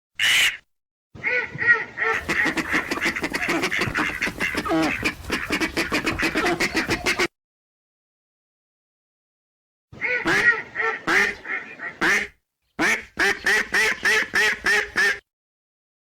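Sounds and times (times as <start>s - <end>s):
ducks quacking: 1.2s - 7.3s, 10.0s - 15.2s.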